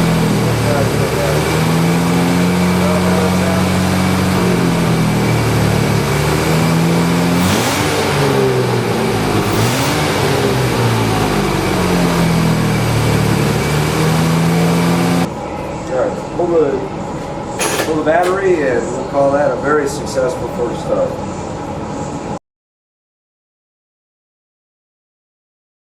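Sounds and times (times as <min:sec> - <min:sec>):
car engine revving: 0:00.0 - 0:15.3.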